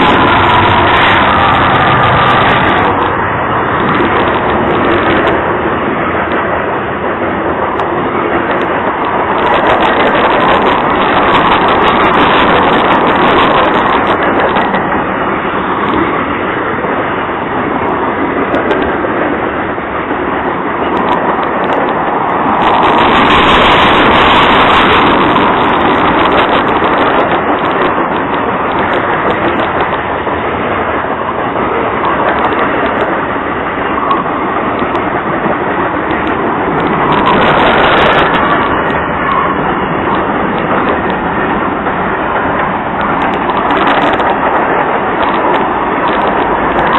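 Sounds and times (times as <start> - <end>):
train wheels on rails: 0.0 - 46.9.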